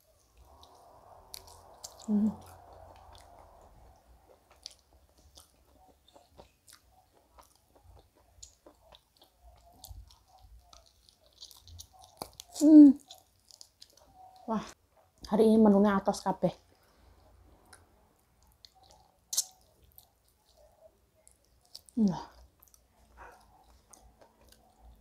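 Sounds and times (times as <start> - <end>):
person chewing food: 0.2 - 15.3, 16.7 - 25.0
wet mouth clicks: 18.4 - 20.7.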